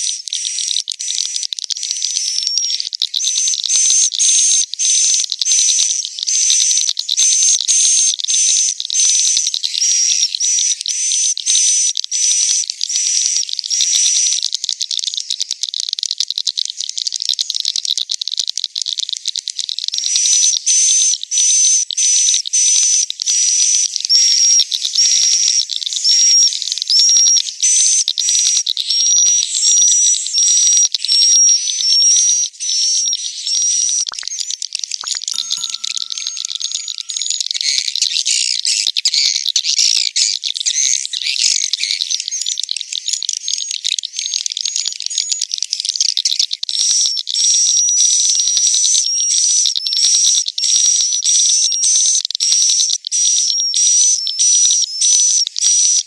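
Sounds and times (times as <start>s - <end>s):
swiftlets twittering: 34.1s - 37.4s
short whistled notes: 35.0s - 37.3s.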